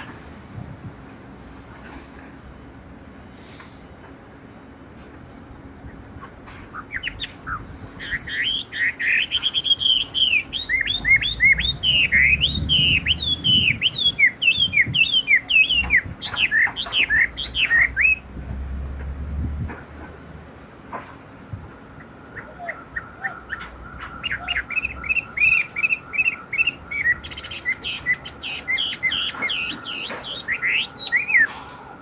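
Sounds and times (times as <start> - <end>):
bird singing whistled notes: 6.8 - 18.2, 22.3 - 31.5.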